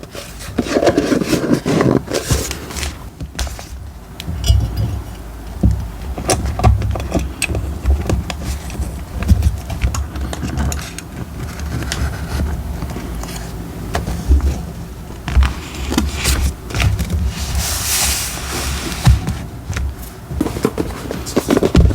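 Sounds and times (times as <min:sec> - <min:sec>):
paper rustling: 0:00.0 - 0:03.8, 0:08.3 - 0:21.9.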